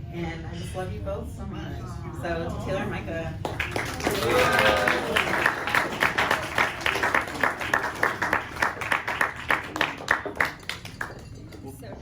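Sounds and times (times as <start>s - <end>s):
crowd applauding: 2.8s - 11.7s.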